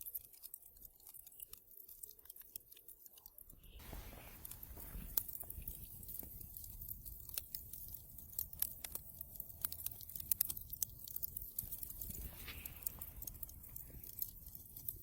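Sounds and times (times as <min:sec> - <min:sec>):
wood fire crackling and popping: 0:00.0 - 0:15.0
low rumble of flames: 0:03.8 - 0:15.0.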